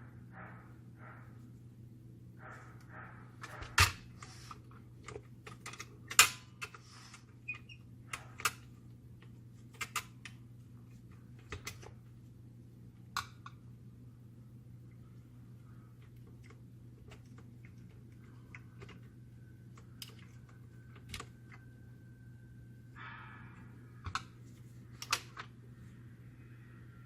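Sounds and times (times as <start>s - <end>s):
low steady hum: 0.0s - 27.0s
plastic and metal parts clicking: 5.0s - 10.4s, 25.0s - 25.5s.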